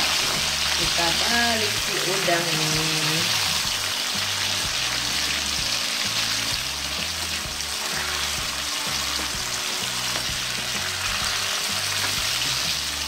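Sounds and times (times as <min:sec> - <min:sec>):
background music with bass: 0:00.0 - 0:13.0
shrimp sizzling in oil: 0:00.0 - 0:13.0
spatula in wok: 0:03.3 - 0:13.0.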